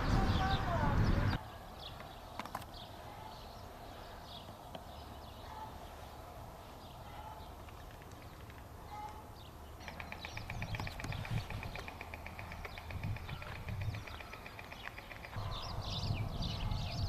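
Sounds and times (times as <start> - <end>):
storks clattering bills: 9.8 - 15.4.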